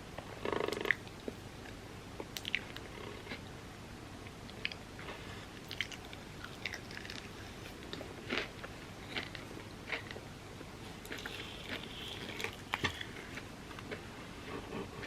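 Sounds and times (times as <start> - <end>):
chewing and crunching: 5.6 - 10.2, 10.9 - 14.6.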